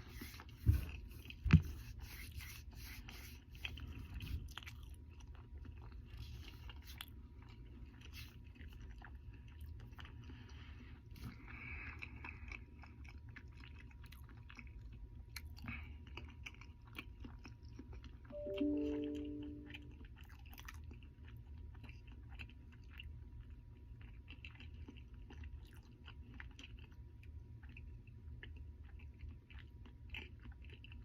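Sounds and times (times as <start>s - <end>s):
person chewing: 3.4s - 18.3s
plucked background music: 18.4s - 20.0s.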